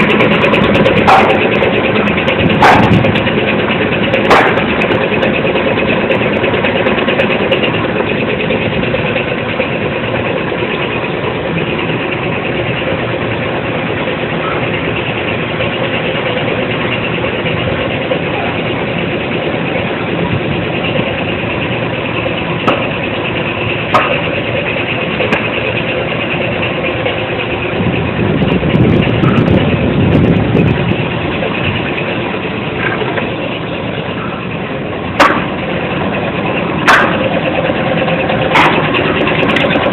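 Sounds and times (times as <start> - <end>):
sharp mechanical knocks: 0.0 - 8.1, 22.6 - 26.0, 35.1 - 39.9
dryer machinery running: 0.0 - 39.9.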